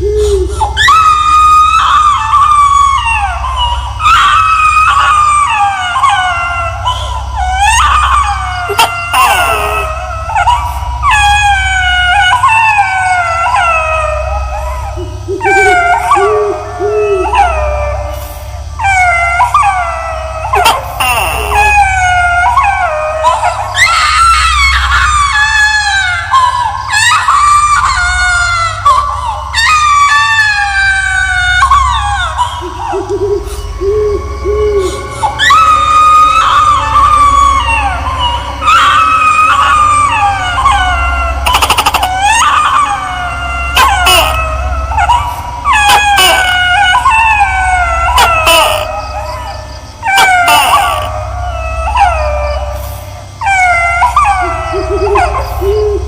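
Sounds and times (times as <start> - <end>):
high-pitched baby wailing cries: 0.0 - 56.0
steady low drone: 0.0 - 56.0
steady low hum: 0.0 - 56.0.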